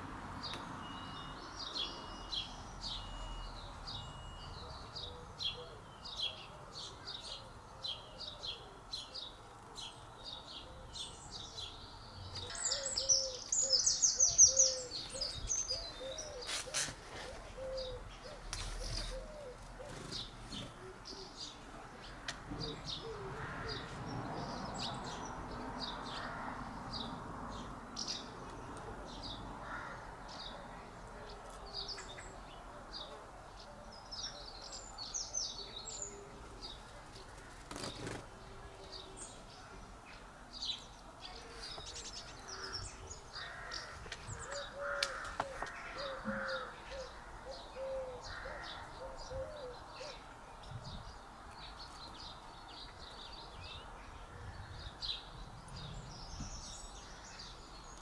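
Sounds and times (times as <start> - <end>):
birds chirping: 0.0 - 58.0
low repeated bird calls: 41.7 - 58.0.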